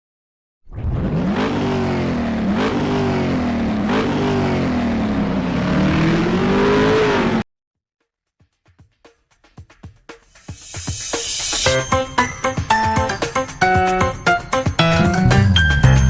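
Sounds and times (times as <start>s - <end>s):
motorcycle engine accelerating: 0.9s - 7.4s.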